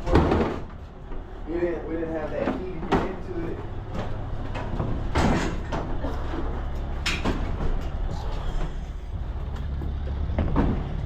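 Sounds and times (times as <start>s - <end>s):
low rumble: 3.5s - 11.0s.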